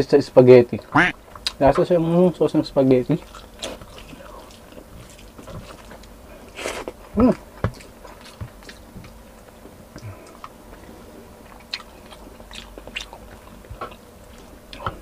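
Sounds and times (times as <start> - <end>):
person chewing food: 3.1 - 15.0.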